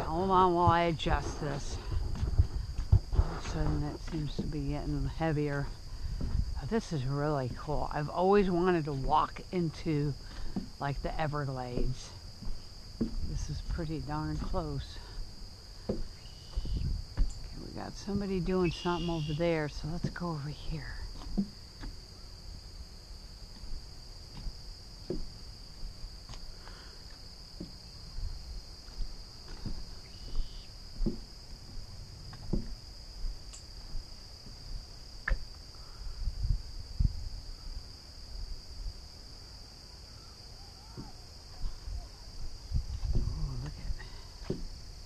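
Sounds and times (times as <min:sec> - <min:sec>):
low thumps and knocks: 0:00.0 - 0:09.3, 0:10.4 - 0:15.2, 0:15.8 - 0:17.6, 0:23.6 - 0:26.4, 0:28.9 - 0:35.5, 0:42.7 - 0:44.7
insects droning: 0:00.0 - 0:45.0.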